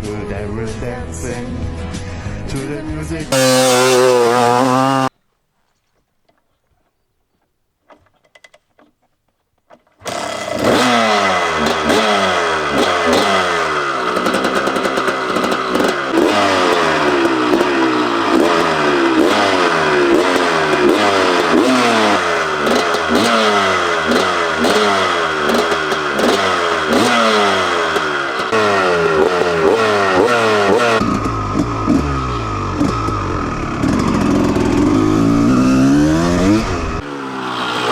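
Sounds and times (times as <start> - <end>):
motocross engine revving: 3.3 - 5.1, 10.0 - 37.9.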